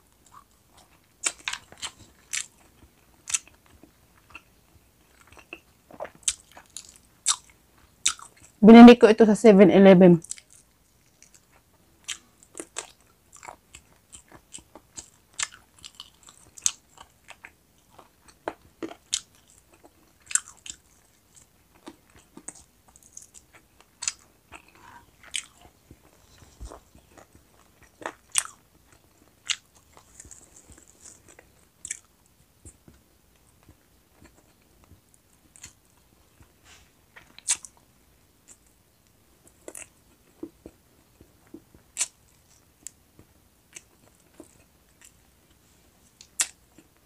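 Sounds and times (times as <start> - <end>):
person chewing chicken wings: 0.2 - 8.6, 10.2 - 38.8, 39.4 - 43.0.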